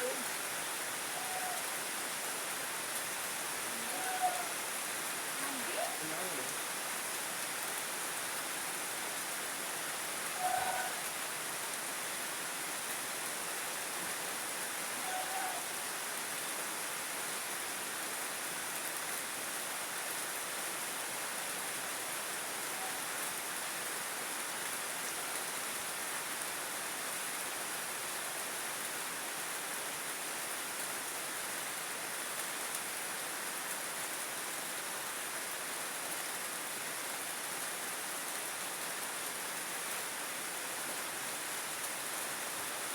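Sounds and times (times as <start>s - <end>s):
heavy rain hissing: 0.0s - 7.6s.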